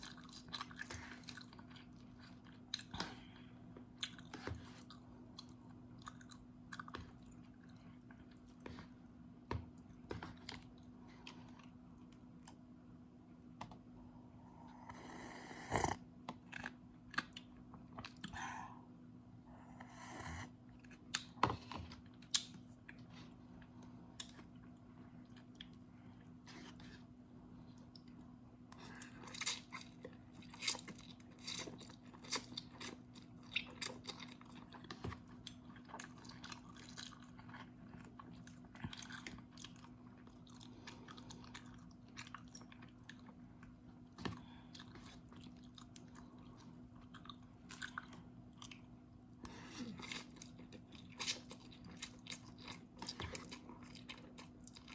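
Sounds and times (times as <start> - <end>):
chewing noodles: 0.0 - 9.0, 27.7 - 54.9
faint steady hum: 0.0 - 54.9.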